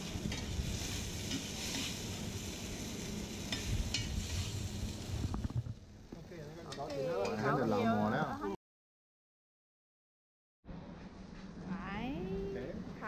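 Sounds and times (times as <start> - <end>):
metal spatula scraping a wok: 0.0 - 4.7
food sizzling in a wok: 0.0 - 5.5, 6.2 - 8.5.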